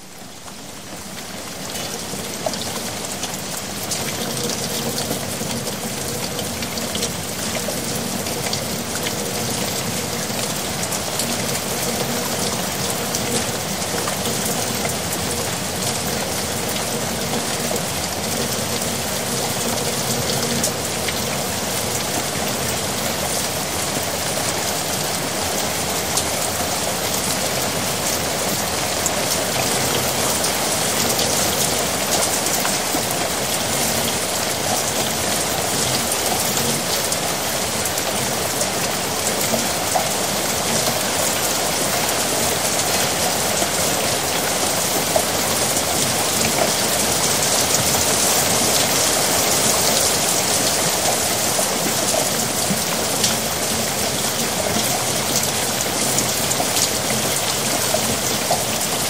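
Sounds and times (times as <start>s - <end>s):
heavy rain patter: 0.0s - 59.0s.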